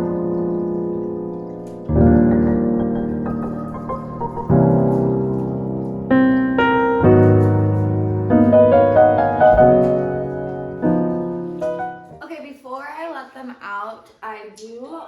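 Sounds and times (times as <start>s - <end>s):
piano chords: 0.0s - 12.2s.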